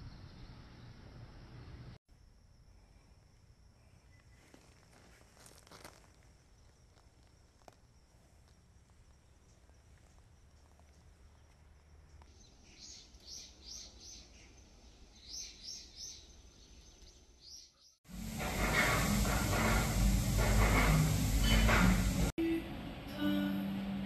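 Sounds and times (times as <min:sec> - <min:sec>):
bird chirping: 0:10.6 - 0:18.0.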